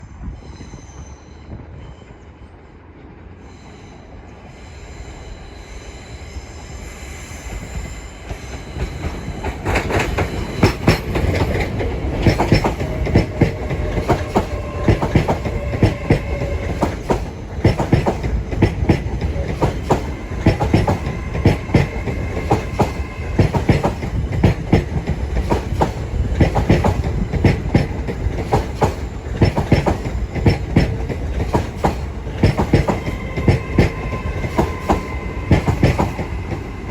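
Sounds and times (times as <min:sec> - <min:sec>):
electric train rumbling past: 0:00.0 - 0:36.9
wheels clicking over rail joints: 0:08.8 - 0:36.4.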